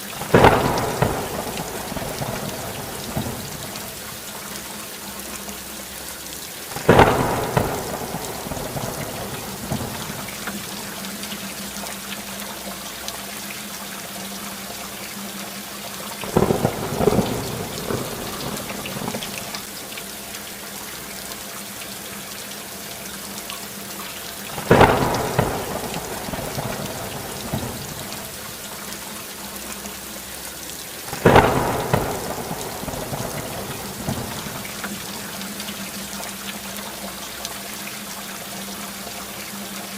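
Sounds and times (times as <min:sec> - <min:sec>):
steady rainfall: 0:00.0 - 0:39.9
thunder claps rumbling: 0:00.2 - 0:04.2, 0:06.8 - 0:10.8, 0:16.2 - 0:19.7, 0:24.6 - 0:28.6, 0:31.1 - 0:35.3.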